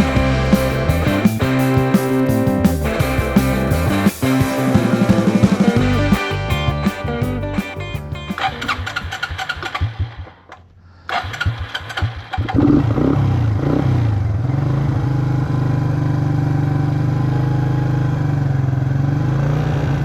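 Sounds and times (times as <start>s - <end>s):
rock guitar music: 0.0s - 9.6s
atv engine starting and idling: 0.0s - 10.2s, 11.1s - 20.0s.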